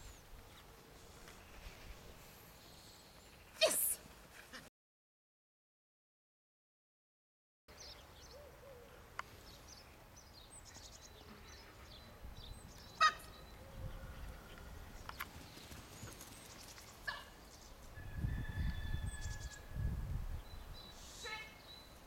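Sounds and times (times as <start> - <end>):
birds chirping: 7.7 - 17.9, 20.4 - 22.0.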